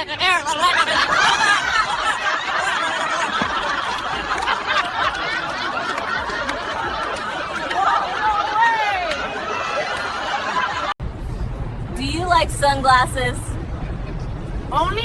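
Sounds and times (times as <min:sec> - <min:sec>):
people laughing: 0:00.0 - 0:11.0.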